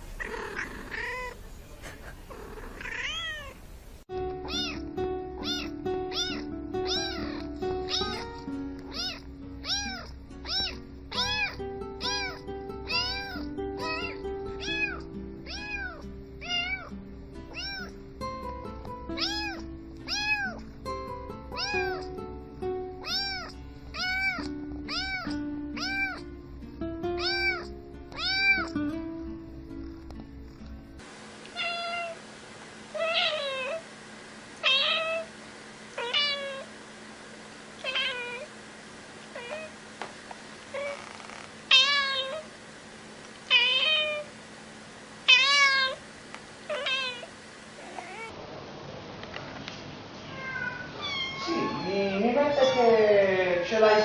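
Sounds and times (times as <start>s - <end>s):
cat meowing: 0.2s - 1.4s, 2.5s - 3.6s, 4.4s - 16.9s, 17.5s - 18.0s, 19.2s - 20.6s, 21.5s - 22.1s, 23.0s - 26.2s, 27.2s - 28.8s, 31.5s - 32.2s, 33.0s - 33.8s, 34.6s - 35.3s, 36.0s - 36.7s, 37.8s - 38.5s, 39.3s - 39.8s, 40.7s - 42.5s, 43.5s - 44.3s, 45.3s - 46.0s, 46.7s - 48.3s, 50.2s - 53.0s.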